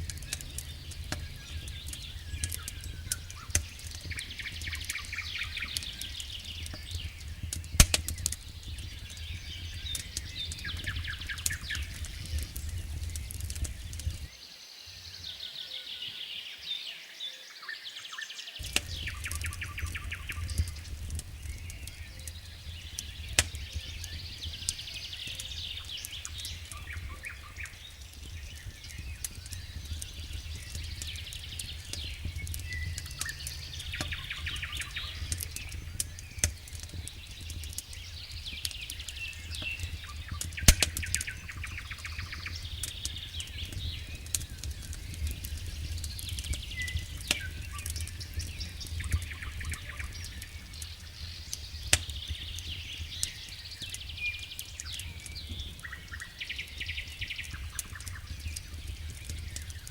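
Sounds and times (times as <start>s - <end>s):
low rumble: 0.0s - 14.3s, 18.6s - 51.4s
wood fire crackling: 0.0s - 14.4s, 18.6s - 59.9s.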